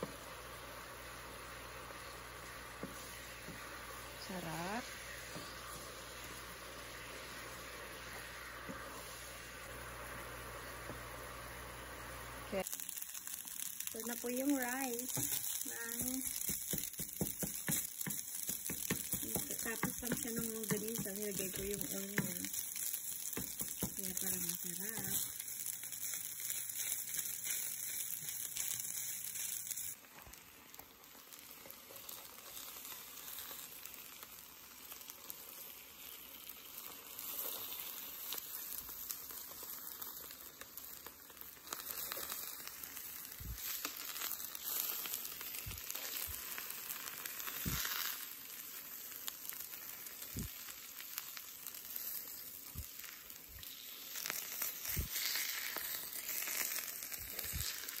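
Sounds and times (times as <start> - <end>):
eggs frying on a griddle: 0.0 - 58.0
rice sizzling in fat: 0.0 - 58.0
wooden spatula stirring in pan: 2.4 - 9.5, 14.6 - 25.4.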